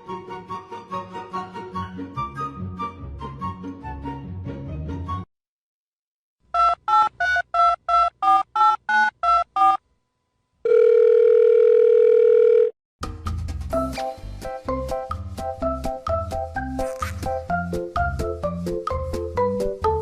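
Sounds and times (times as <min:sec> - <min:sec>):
music: 0:00.0 - 0:05.3, 0:13.0 - 0:20.0
steady phone tone: 0:10.6 - 0:12.8.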